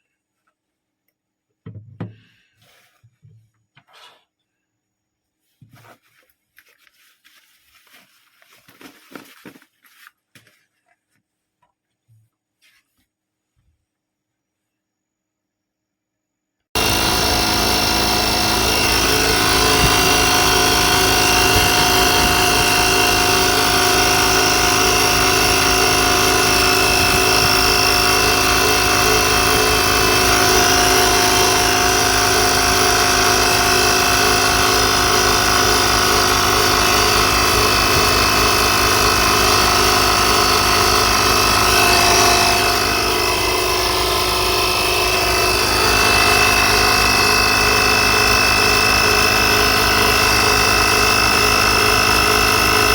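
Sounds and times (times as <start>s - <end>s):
air compressor pumping: 16.8s - 52.9s.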